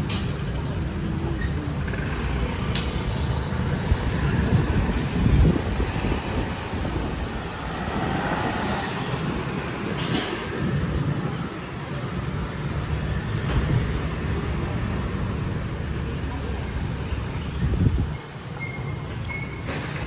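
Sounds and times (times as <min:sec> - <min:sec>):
street traffic: 0:00.0 - 0:20.0
metro train rumbling past: 0:03.4 - 0:12.0.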